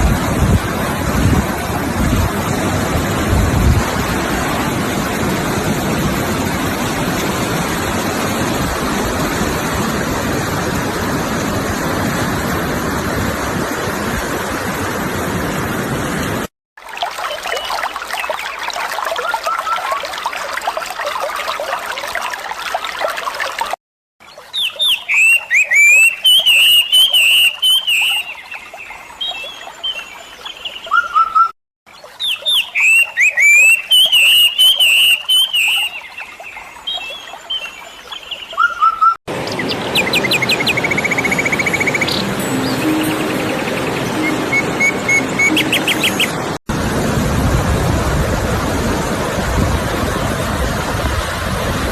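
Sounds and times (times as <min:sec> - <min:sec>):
faint bird chirps and trills: 0:24.2 - 0:46.4
songbirds singing: 0:24.2 - 0:46.4.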